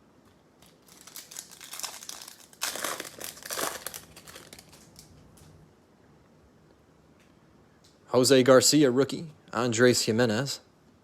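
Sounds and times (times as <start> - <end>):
plastic foil wrapper crinkling: 0.6 - 5.2.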